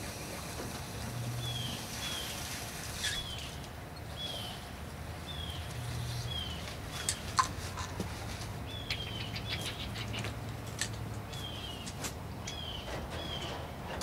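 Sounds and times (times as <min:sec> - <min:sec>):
bird chirping: 0:05.2 - 0:07.3, 0:08.6 - 0:10.3, 0:11.3 - 0:13.6.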